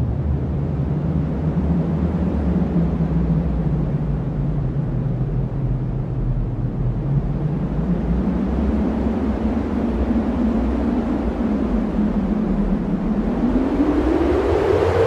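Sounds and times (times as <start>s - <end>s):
strong wind rushing: 4.2s - 15.0s.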